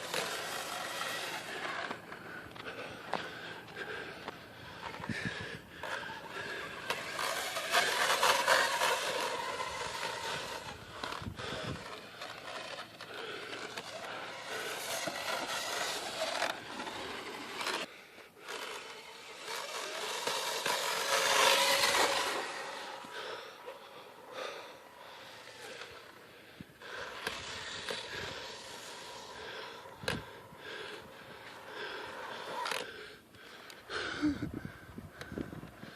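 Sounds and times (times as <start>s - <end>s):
rc truck motor whining: 0.0s - 35.9s
tyres on sand: 0.0s - 35.9s.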